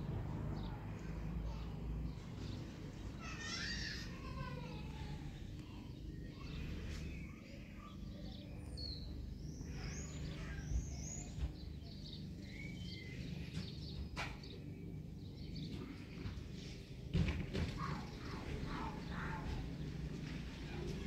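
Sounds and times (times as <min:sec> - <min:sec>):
low outdoor rumble: 0:00.0 - 0:21.0
small birds chirping: 0:00.0 - 0:21.0.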